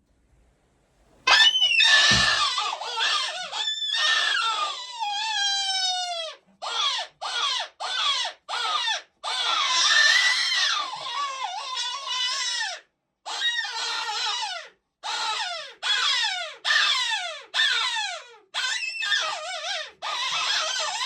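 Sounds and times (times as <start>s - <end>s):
short yelps: 1.3s - 4.4s
electronic animal wailing calls: 1.3s - 12.7s.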